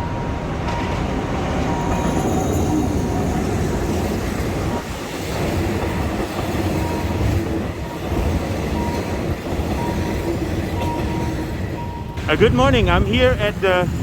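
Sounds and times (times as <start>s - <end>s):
train wheels on rails: 0.0s - 14.0s.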